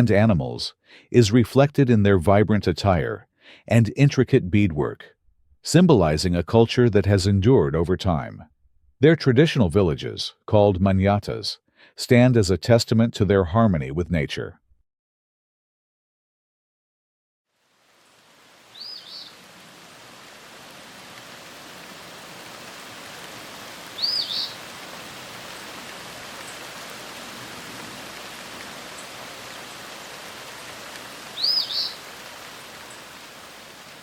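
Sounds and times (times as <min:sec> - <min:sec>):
steady rain-like hiss: 0:17.5 - 0:34.0
bird calling high notes: 0:24.0 - 0:24.6, 0:31.4 - 0:32.0.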